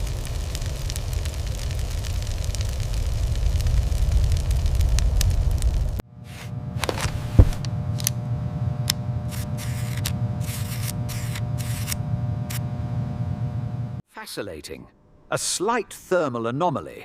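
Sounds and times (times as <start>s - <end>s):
deep rumble: 0.0s - 14.0s
low electrical hum with tones: 4.4s - 14.0s.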